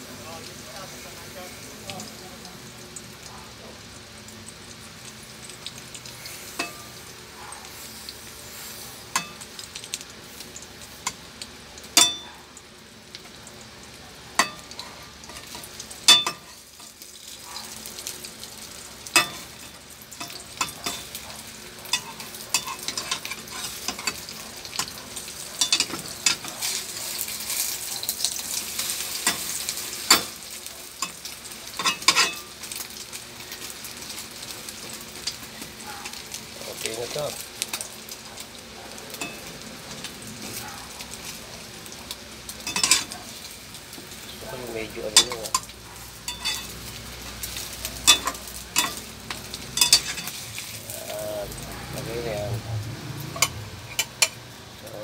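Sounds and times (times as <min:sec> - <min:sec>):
omelet sizzling in oil: 0:00.0 - 0:55.0
metal spatula scraping pan: 0:21.8 - 0:25.0, 0:31.8 - 0:32.5, 0:45.2 - 0:46.8, 0:47.5 - 0:50.8, 0:53.3 - 0:54.4.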